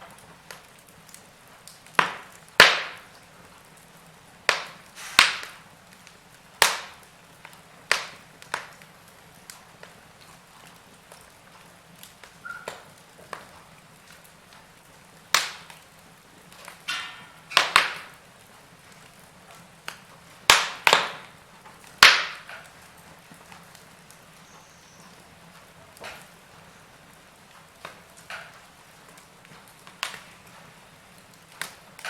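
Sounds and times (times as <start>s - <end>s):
wood fire crackling: 0.0s - 32.0s
sharp loud pops of fire: 1.7s - 3.3s, 4.4s - 8.9s, 15.3s - 15.9s, 16.5s - 18.2s, 19.9s - 22.8s, 27.8s - 30.6s.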